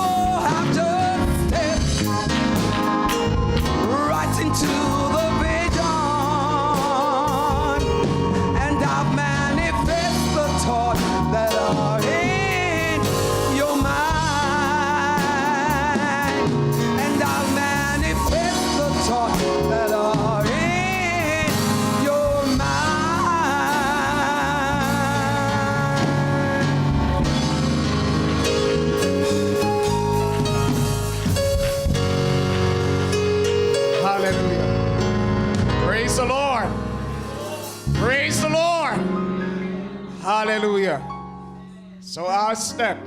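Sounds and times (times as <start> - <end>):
person singing with vibrato: 0.0 - 27.8
band accompaniment: 0.0 - 43.0.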